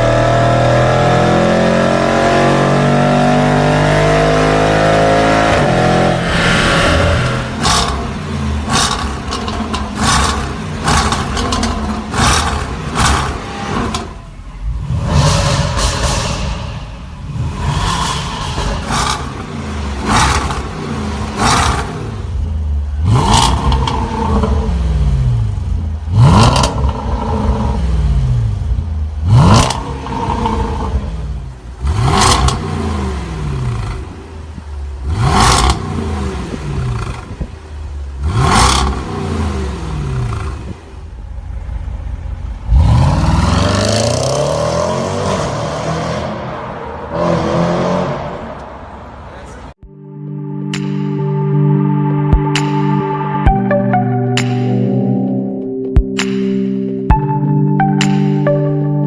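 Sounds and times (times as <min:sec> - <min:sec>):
car engine revving: 0:00.0 - 0:49.8
exhaust cracks: 0:05.2 - 0:22.5.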